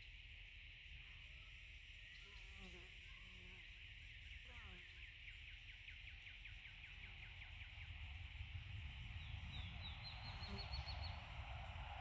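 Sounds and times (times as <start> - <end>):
steady high hiss: 0.0 - 12.0
low rumble: 7.6 - 12.0.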